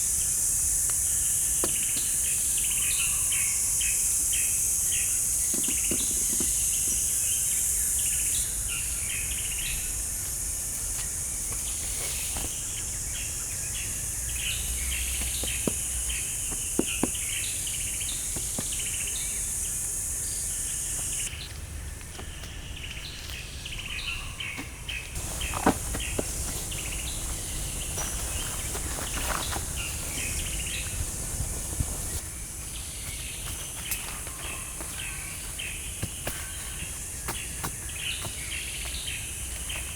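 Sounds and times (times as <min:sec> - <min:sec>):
high insect drone: 0:00.0 - 0:21.4, 0:25.2 - 0:39.9
bird chirps: 0:23.7 - 0:32.2.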